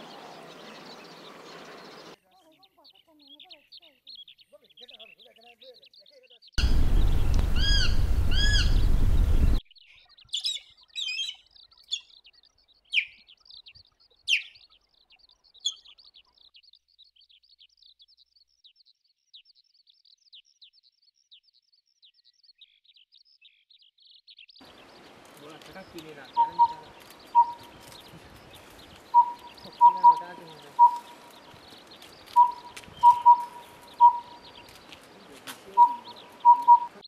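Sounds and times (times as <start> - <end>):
bird calls: 0.0 - 37.0
down-slurred whistles: 32.4 - 34.3.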